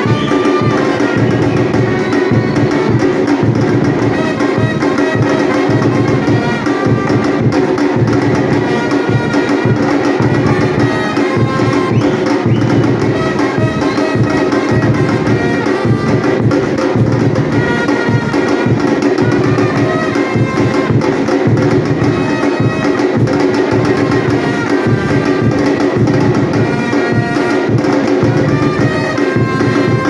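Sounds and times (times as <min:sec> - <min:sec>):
percussion ensemble drumming: 0:00.0 - 0:30.0.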